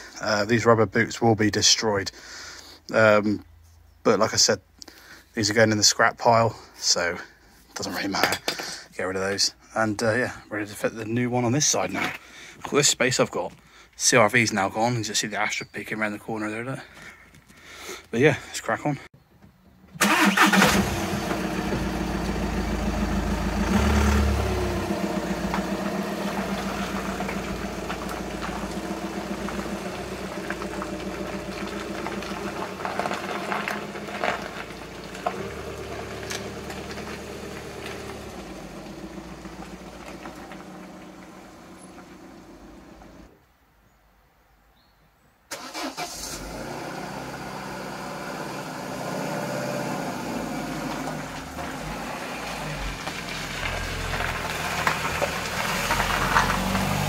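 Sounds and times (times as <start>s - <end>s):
car engine starting and running: 20.0s - 43.3s, 45.5s - 57.0s
engine idling: 20.0s - 43.3s.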